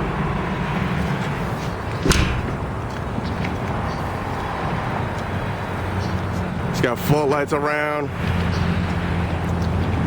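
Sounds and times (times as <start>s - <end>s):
sharp knock: 2.0s - 2.7s.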